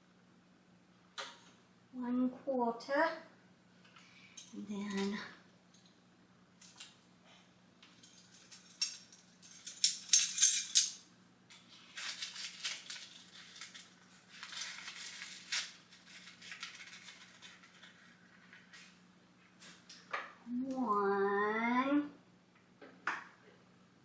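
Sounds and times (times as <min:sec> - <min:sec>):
dry ingredients rattling in container: 0:11.8 - 0:18.2.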